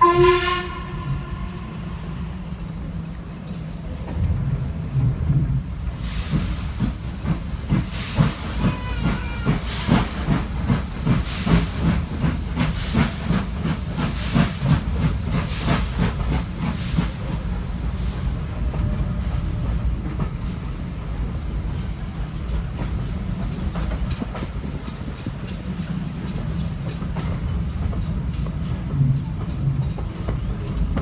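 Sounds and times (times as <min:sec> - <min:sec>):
steam locomotive exhaust chuffs: 0:00.0 - 0:04.0, 0:05.2 - 0:31.0
rumble of carriages: 0:00.0 - 0:31.0
steam hiss: 0:05.6 - 0:27.8.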